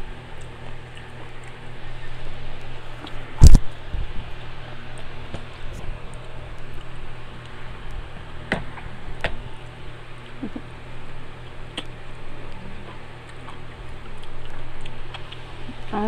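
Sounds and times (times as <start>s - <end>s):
steady low hum: 0.0s - 16.0s
mango being chewed: 8.7s - 15.9s.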